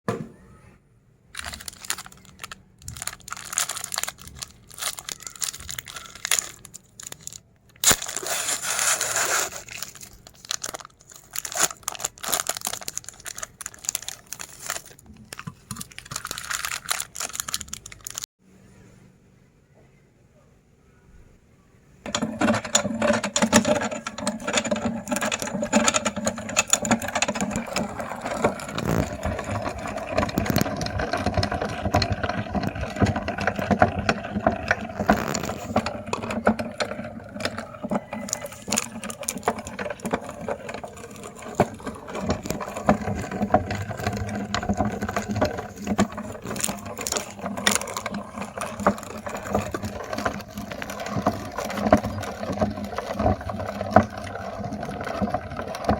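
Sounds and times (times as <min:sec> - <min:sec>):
ice cream cones crunching: 0:01.3 - 0:18.3, 0:24.6 - 0:55.9
meat grinder motor hum: 0:22.1 - 0:55.9.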